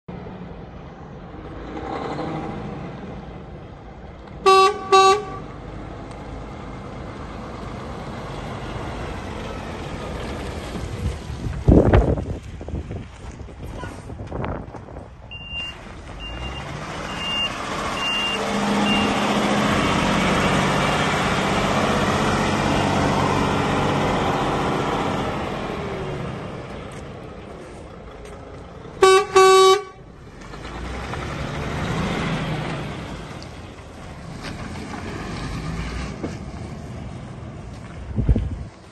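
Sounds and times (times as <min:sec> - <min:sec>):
truck diesel engine revving: 0:01.2 - 0:12.0, 0:15.6 - 0:37.7
truck horn blasts: 0:04.4 - 0:05.6, 0:29.0 - 0:30.1.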